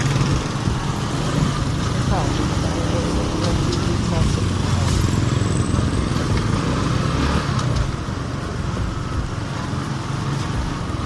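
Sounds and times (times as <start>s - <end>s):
motorcycle engine running: 0.0s - 11.0s
road noise: 0.0s - 11.0s.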